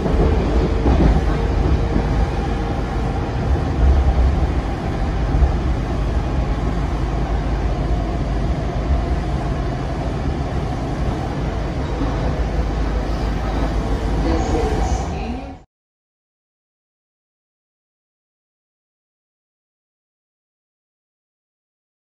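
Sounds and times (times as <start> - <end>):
train rumble with rail noise: 0.0 - 15.7.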